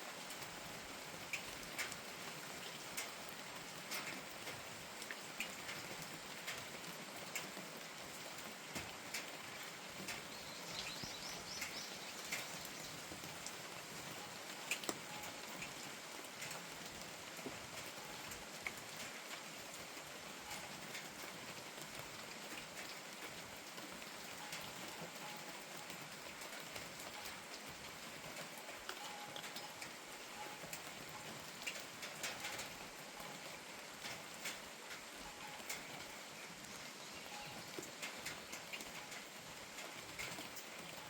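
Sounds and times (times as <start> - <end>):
rain falling: 0.0 - 41.0
raindrops tapping close by: 0.1 - 41.0.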